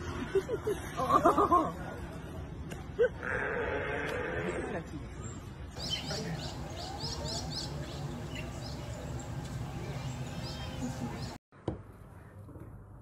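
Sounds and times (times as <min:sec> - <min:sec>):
birds chirping: 0:05.1 - 0:11.4
steady background hum: 0:05.8 - 0:11.4.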